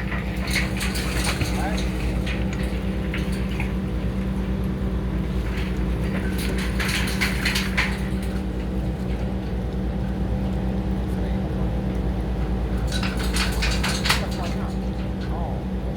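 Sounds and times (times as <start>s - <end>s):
metallic scraping and clanking: 0.0s - 9.4s, 12.9s - 15.4s
diesel engine running: 0.0s - 15.9s.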